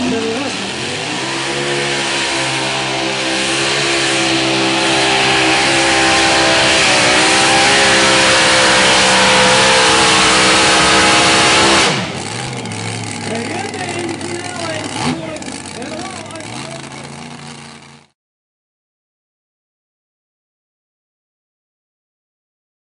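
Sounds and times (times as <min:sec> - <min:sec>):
tractor engine at full throttle: 0:00.0 - 0:18.1.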